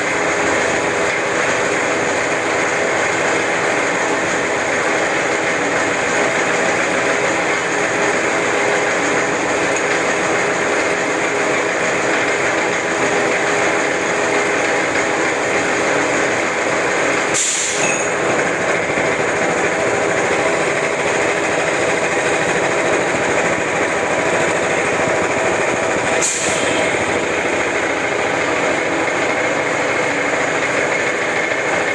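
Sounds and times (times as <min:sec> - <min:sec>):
lathe machine whir: 0:00.0 - 0:31.9
brief high hissing: 0:17.4 - 0:17.9.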